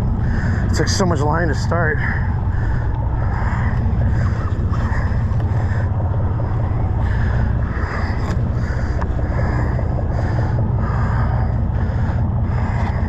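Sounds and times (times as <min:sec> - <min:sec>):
boat engine rumble: 0:00.0 - 0:13.0
water noise: 0:00.0 - 0:13.0.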